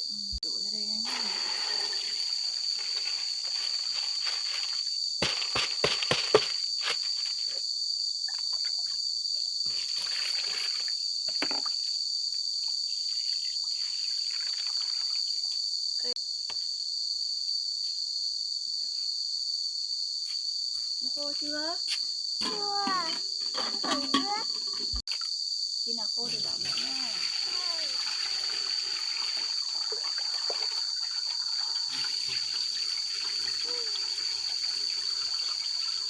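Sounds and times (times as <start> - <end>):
insects chirring: 0.0 - 36.0
rustling and handling noise: 2.3 - 7.6.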